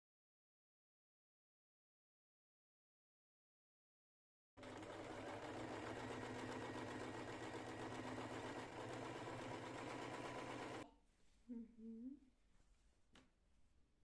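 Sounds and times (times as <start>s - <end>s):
electric sewing machine stitching: 4.6s - 10.8s.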